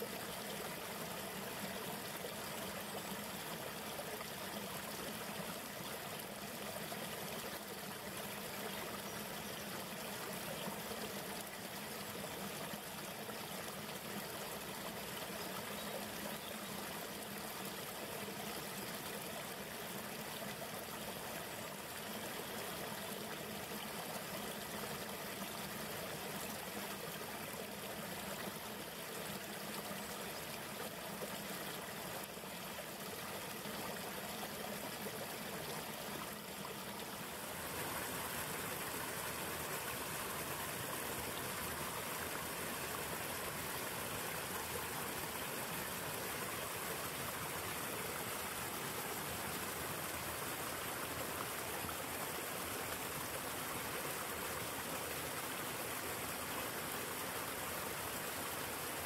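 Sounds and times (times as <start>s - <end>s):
river water rushing: 36.6s - 56.8s.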